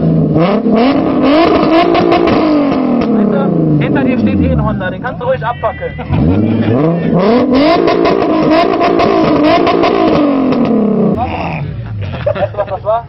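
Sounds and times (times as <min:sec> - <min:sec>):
car engine revving on limiter: 0:00.0 - 0:05.1, 0:06.0 - 0:11.7
exhaust pops and bangs: 0:00.5 - 0:04.2, 0:07.4 - 0:11.2.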